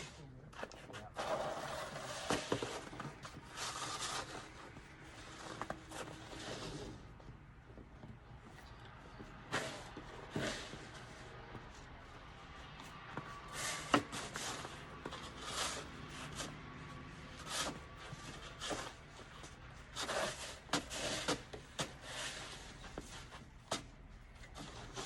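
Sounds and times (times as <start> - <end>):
shovel scraping snow: 1.2 - 4.6, 5.2 - 7.0, 9.5 - 11.3, 13.5 - 16.6, 17.4 - 23.3.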